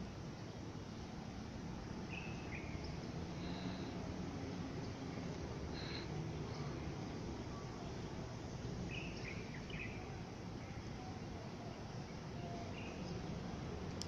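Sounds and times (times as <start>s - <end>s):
bird chirps: 2.1s - 3.7s, 8.9s - 11.1s.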